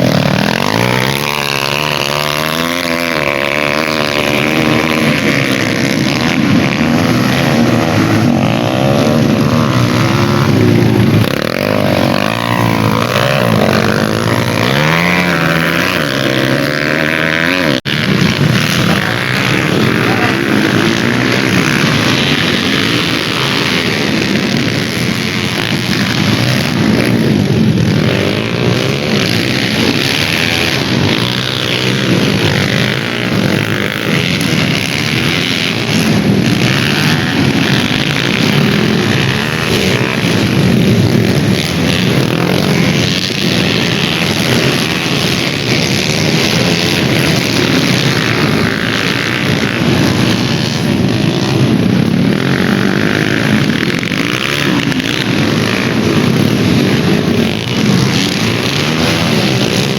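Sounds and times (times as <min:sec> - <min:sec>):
dirt bike engines revving: 0:00.0 - 0:59.9.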